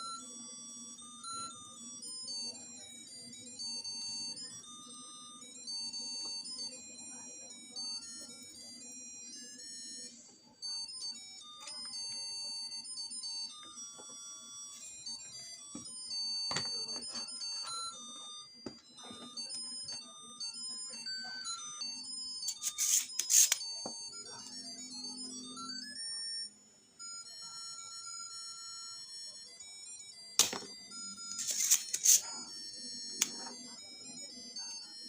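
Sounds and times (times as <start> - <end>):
beeping chiptune melody: 0.0 - 10.1.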